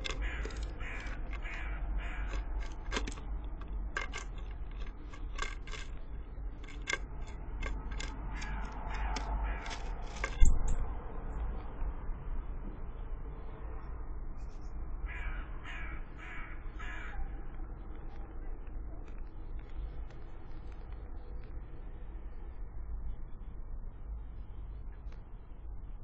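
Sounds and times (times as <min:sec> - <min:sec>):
birds harsh repeated calls: 0:00.0 - 0:05.5, 0:07.2 - 0:10.6
low outdoor rumble: 0:00.0 - 0:26.0.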